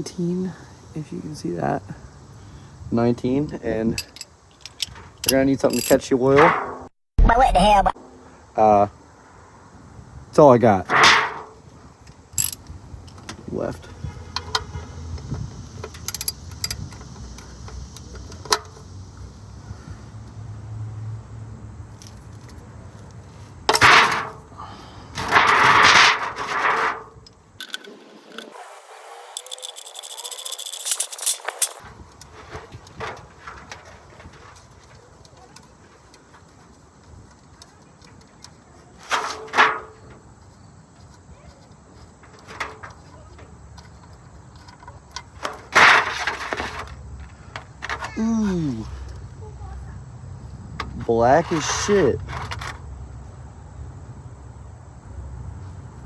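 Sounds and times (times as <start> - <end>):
wrench clinking and scraping: 3.9 - 6.8, 10.9 - 14.7, 15.8 - 18.8, 23.7 - 24.5, 25.2 - 40.1.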